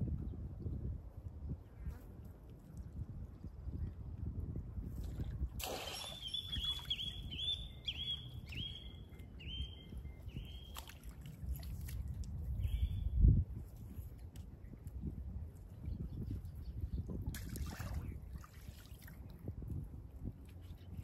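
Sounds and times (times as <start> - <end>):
bird calling rising notes: 5.9 - 10.8.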